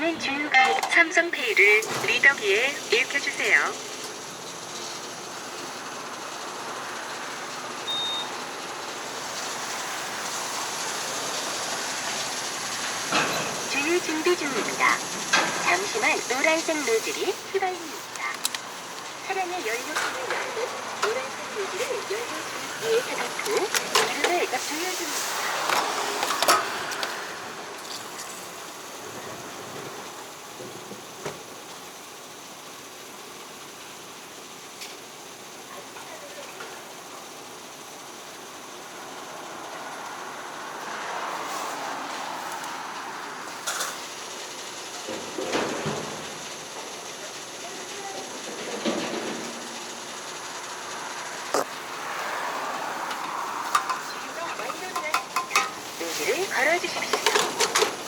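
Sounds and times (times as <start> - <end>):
payment terminal beep: 0.0 - 3.8, 7.8 - 8.4, 19.6 - 25.1
steady rushing background noise: 0.0 - 7.8, 8.6 - 29.5, 49.7 - 58.0
fuel flowing hiss: 1.2 - 58.0.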